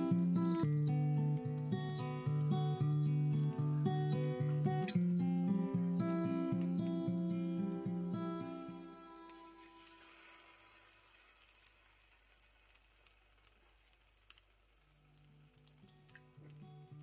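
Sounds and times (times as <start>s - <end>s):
small crackles of frying oil: 0.0s - 17.0s
food sizzling in oil: 8.7s - 17.0s.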